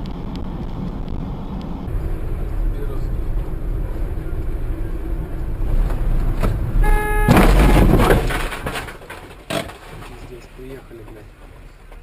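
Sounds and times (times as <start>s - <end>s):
vehicle engine and road rumble: 0.0s - 12.0s
car horn blast: 6.8s - 8.2s
loud noisy collision burst: 7.1s - 9.3s.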